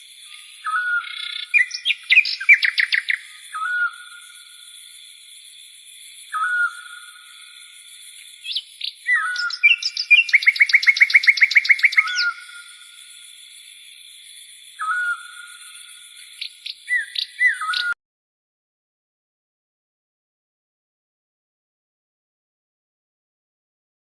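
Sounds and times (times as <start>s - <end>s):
bird fast trill: 0.6s - 3.9s, 8.4s - 12.8s, 16.4s - 18.0s.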